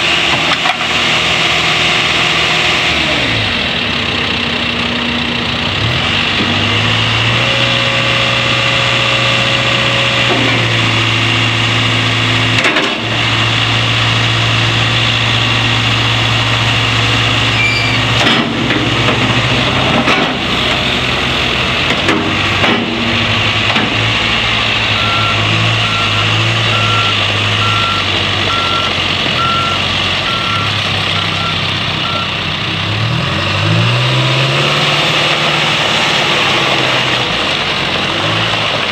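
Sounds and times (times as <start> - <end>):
diesel engine under changing load: 0.0 - 38.9
backup alarm beeping: 24.9 - 32.5.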